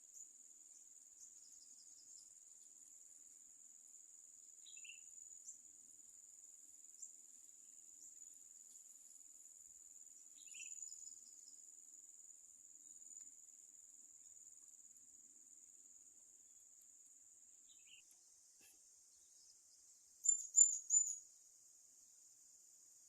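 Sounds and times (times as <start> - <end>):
insect chirps: 0.0 - 23.0
high-pitched insect drone: 17.0 - 23.0.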